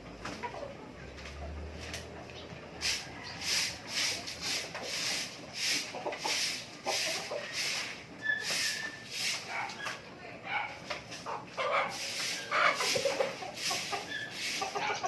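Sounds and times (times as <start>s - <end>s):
rhythmic scraping strokes: 2.8s - 9.6s, 11.1s - 15.0s.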